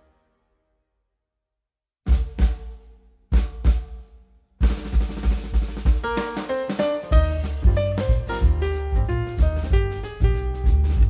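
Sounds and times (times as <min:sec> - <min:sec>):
upbeat jazzy piano music: 0:05.8 - 0:11.0.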